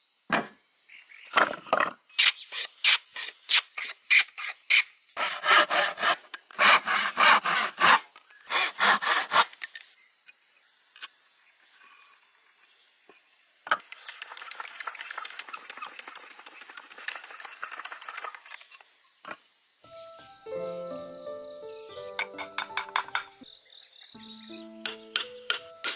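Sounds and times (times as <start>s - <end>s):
hand sawing wood: 2.5s - 9.5s, 14.0s - 18.6s
hand tool strokes on wood: 5.2s - 9.5s, 13.8s - 18.6s
scraping on wood: 5.2s - 9.5s.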